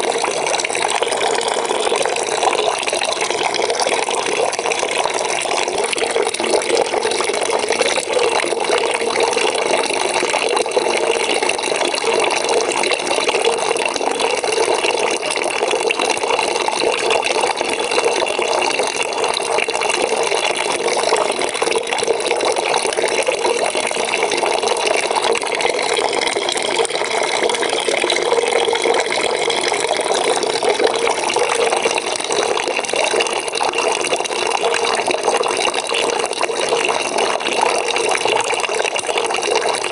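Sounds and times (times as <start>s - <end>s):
tap water pouring into bucket: 0.0s - 39.9s.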